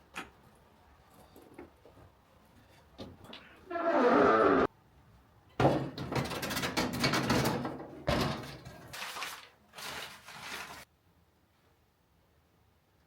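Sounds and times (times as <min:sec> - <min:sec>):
wooden clattering and knocking: 0:05.6 - 0:08.8.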